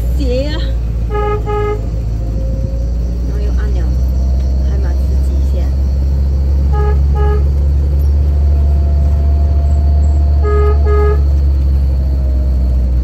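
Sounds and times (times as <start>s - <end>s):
vehicle driving drone: 0.0s - 13.0s
vehicle horn short blasts: 1.1s - 1.9s, 6.7s - 7.6s, 10.4s - 11.3s.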